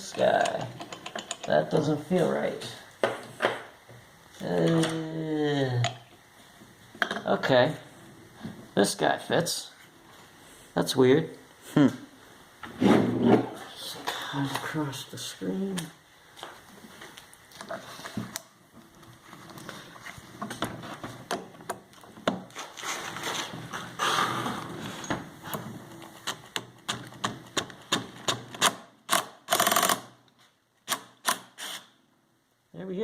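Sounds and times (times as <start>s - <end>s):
socket ratchet clicking: 28.2s - 30.1s
ratchet rasp: 28.3s - 30.1s.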